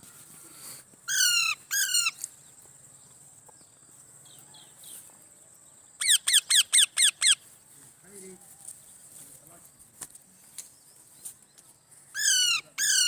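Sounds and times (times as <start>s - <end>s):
bird calling: 1.1s - 2.3s, 6.0s - 7.5s, 12.1s - 13.0s.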